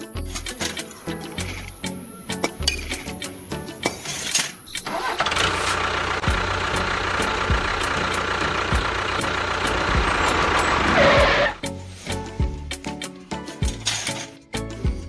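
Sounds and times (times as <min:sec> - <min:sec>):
small tractor engine running: 0:00.2 - 0:11.6.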